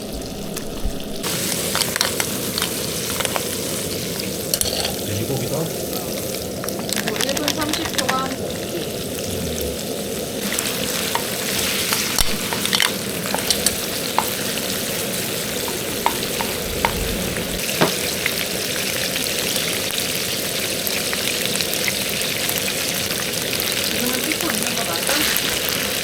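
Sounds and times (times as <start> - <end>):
food sizzling in a hot pan: 0.0 - 26.0
utensil clicking against pan: 10.6 - 14.6.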